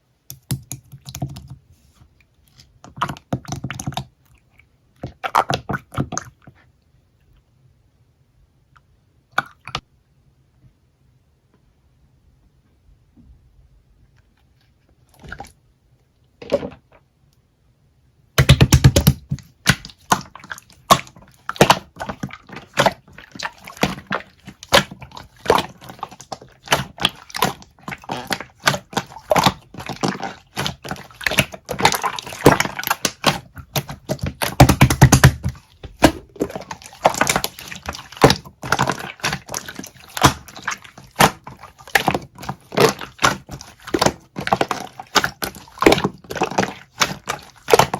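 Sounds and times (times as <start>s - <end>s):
squishy slime pushes: 18.4s - 47.9s.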